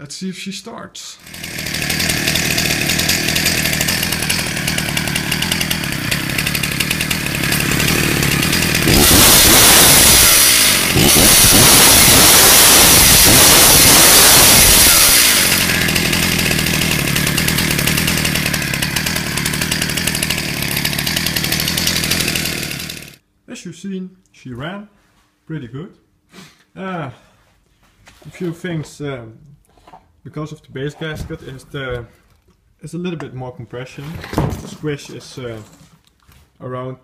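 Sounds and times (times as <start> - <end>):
chainsaw engine idling and revving: 1.2 - 23.2.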